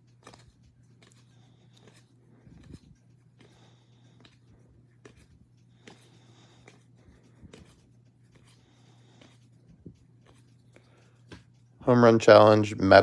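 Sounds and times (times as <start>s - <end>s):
low steady hum: 0.0s - 13.0s
trading cards flipped by hand: 0.1s - 2.9s.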